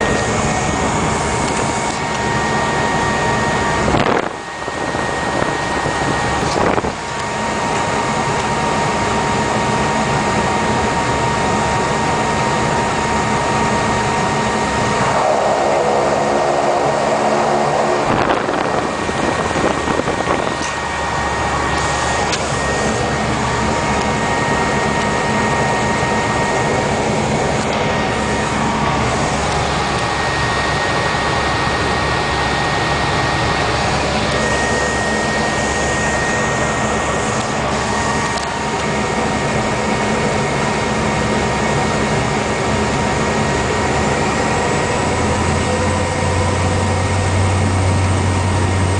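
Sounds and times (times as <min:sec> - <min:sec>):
turboprop engine whine and roar: 0:00.0 - 0:48.9
brief pitched tone: 0:34.1 - 0:38.5.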